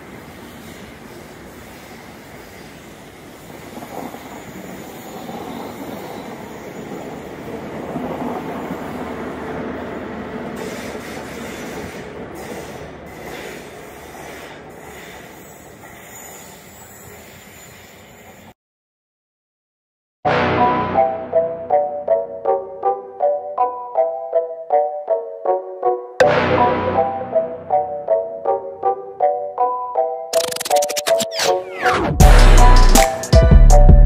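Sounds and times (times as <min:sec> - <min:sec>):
diesel locomotive passing: 0:00.0 - 0:18.5
train coaches rumbling past: 0:00.0 - 0:18.5
sharp clicks from train wheels: 0:10.4 - 0:16.5.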